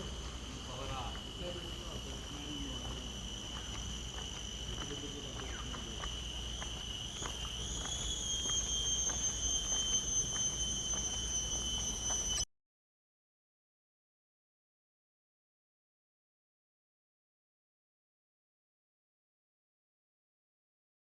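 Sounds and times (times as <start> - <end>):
steady high-pitched whine: 0.0 - 12.5.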